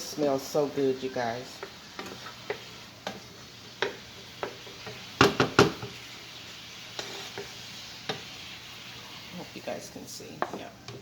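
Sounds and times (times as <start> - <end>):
vegetables sizzling in a pan: 0.0 - 11.0
utensil knocking and scraping pan: 3.8 - 6.0.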